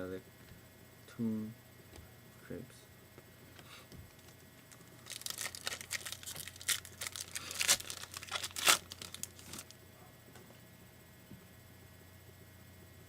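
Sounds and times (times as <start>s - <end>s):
wrapper tearing and crinkling: 4.1s - 9.7s.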